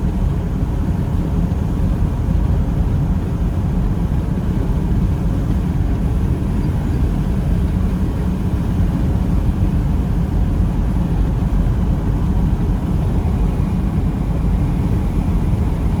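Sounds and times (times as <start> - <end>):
diesel engine running: 4.9 - 16.0.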